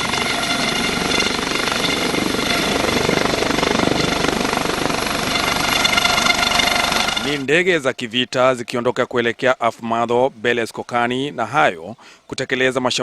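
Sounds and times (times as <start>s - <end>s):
helicopter rotor chop: 0.0s - 7.5s
high whine: 0.0s - 7.5s.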